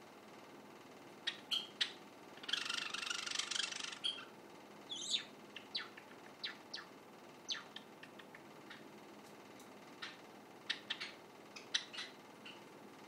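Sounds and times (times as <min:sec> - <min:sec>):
young sparrow chirping: 0:01.3 - 0:04.3, 0:04.9 - 0:06.9, 0:07.5 - 0:08.8, 0:10.0 - 0:12.6.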